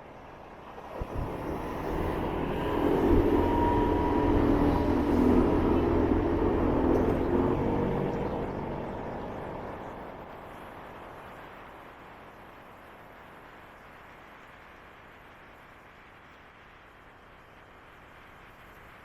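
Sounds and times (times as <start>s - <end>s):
loud vehicle passing by: 1.0s - 10.6s.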